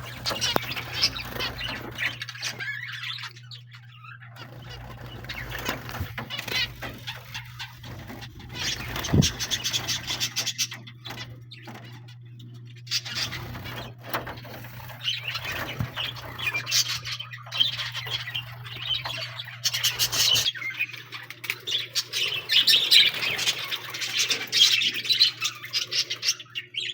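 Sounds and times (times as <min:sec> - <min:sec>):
steady low hum: 0:00.0 - 0:20.8
small birds chirping and squawking: 0:00.0 - 0:26.9.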